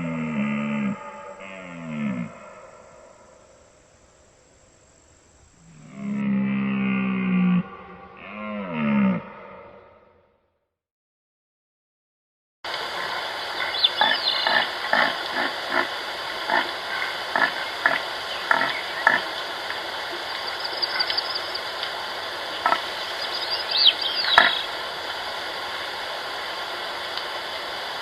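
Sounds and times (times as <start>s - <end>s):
background hiss: 0.0s - 6.2s, 12.7s - 28.0s
high chirps: 20.2s - 21.6s, 22.6s - 24.7s.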